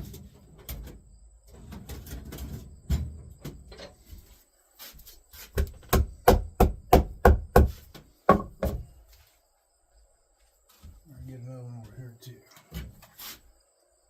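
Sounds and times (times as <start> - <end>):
hammer tapping staples into wood: 5.6 - 8.8.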